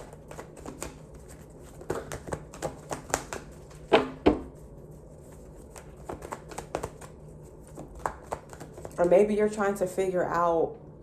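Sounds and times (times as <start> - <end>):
cards being shuffled: 0.0 - 3.9, 4.6 - 9.1.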